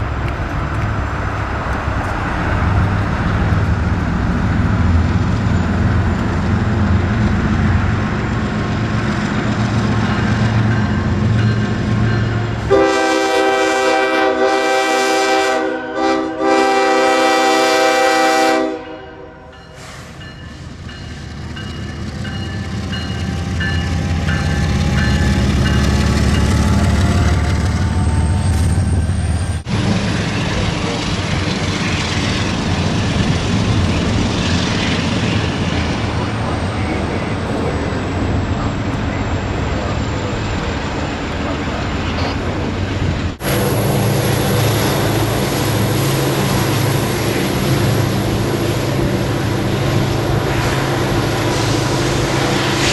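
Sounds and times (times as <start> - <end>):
locomotive engine rumble: 0.0 - 15.0, 19.9 - 52.9
train rushing by: 0.0 - 52.9
locomotive air horn: 12.6 - 20.2.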